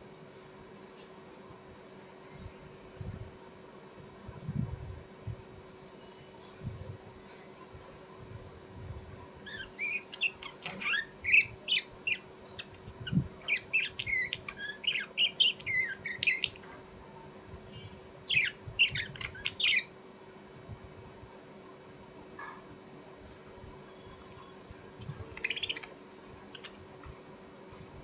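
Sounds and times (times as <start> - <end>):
bird squawking and chirping: 9.4 - 16.6, 18.3 - 19.9, 25.4 - 25.9.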